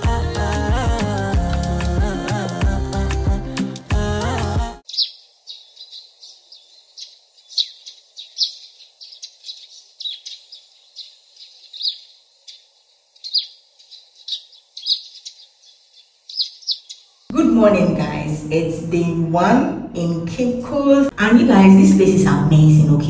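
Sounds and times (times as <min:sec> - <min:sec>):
small birds chirping: 0:04.8 - 0:17.3
faint background hiss: 0:04.9 - 0:19.0.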